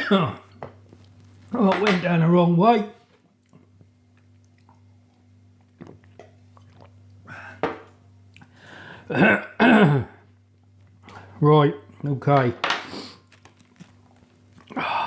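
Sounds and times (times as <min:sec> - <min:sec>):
man coughing: 0:09.1 - 0:10.2.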